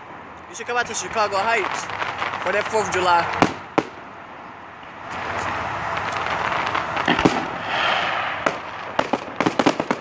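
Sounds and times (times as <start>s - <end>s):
fireworks bangs: 0.6s - 4.1s, 5.1s - 10.0s
fireworks hissing: 1.0s - 3.6s, 5.1s - 8.9s.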